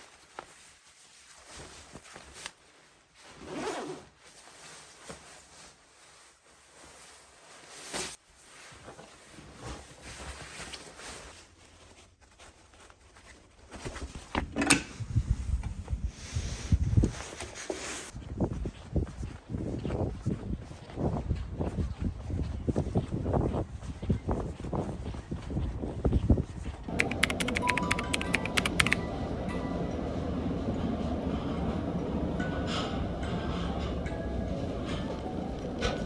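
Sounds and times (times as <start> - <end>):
soft rustling and rubbing: 0.0 - 14.3
sharp click: 26.9 - 29.0.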